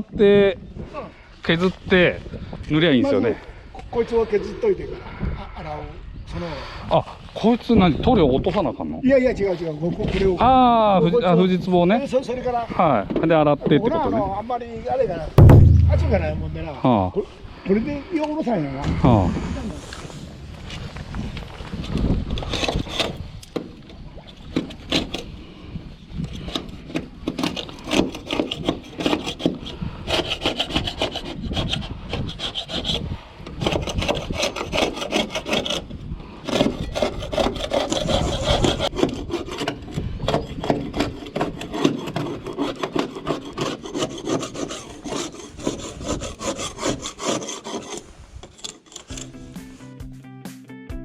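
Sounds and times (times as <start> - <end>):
scraper scraping boat hull: 22.4 - 23.3, 24.5 - 25.4, 26.3 - 49.3.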